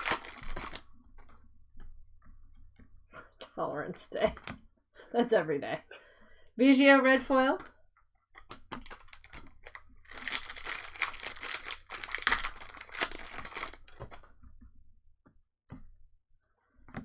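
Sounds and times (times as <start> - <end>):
cards clicking: 0.0 - 0.8, 8.4 - 14.2
foil wrapper tearing and crinkling: 0.0 - 0.8, 8.7 - 14.2.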